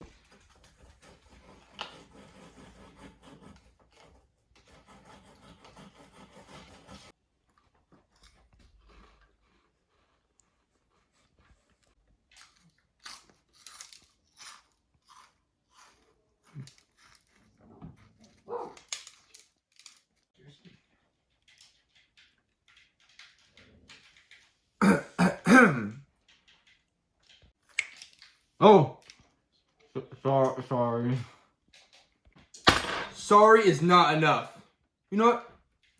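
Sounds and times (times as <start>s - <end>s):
open-mouthed chewing: 7.4s - 18.9s
throat clearing: 24.8s - 26.0s.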